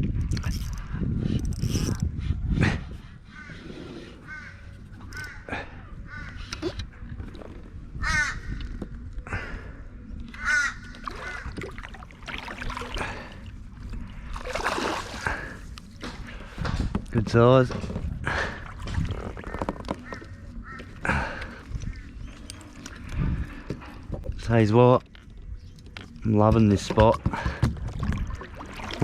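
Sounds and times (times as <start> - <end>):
crow cawing: 4.3 - 6.4, 8.0 - 8.6, 10.4 - 11.6, 19.9 - 22.1.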